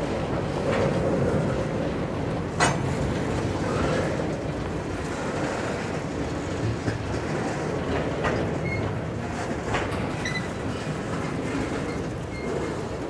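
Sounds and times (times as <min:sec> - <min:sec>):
freight cars rumbling: 0:00.0 - 0:13.0
faint high wheel squeals: 0:08.6 - 0:08.9, 0:10.2 - 0:10.6, 0:11.8 - 0:12.9.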